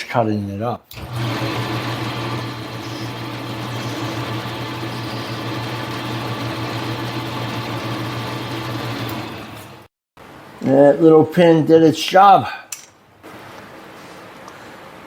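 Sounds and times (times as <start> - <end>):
parting tool cutting workpiece: 0.9 - 9.9
lathe motor hum: 1.0 - 9.9.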